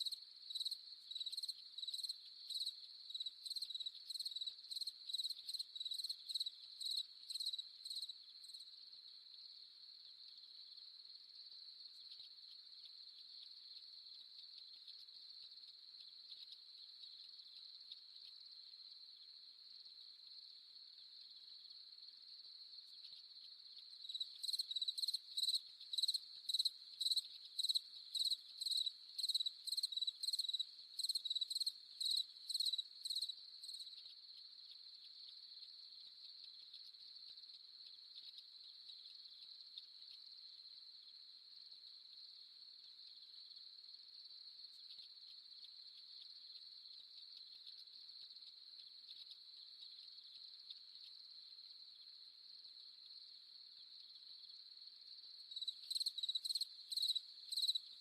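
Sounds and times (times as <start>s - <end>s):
crickets chirping: 0.0s - 58.0s
high insect trill: 55.4s - 58.0s.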